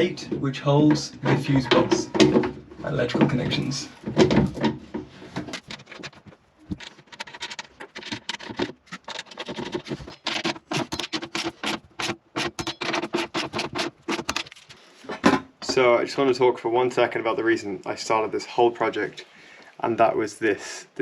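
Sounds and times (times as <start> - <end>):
hand tools clicking and scraping: 0.8 - 15.2.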